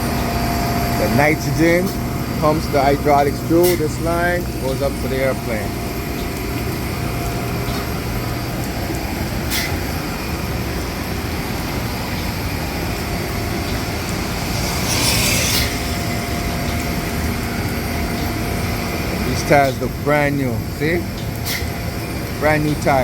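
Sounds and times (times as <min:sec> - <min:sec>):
machinery drone: 0:00.0 - 0:21.2
hydraulic hiss: 0:13.2 - 0:17.0.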